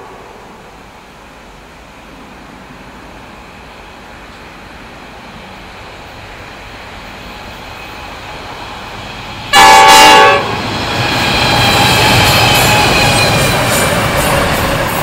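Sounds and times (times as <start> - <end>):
diesel train rumbling: 0.0 - 15.0
train horn blast: 9.5 - 10.7.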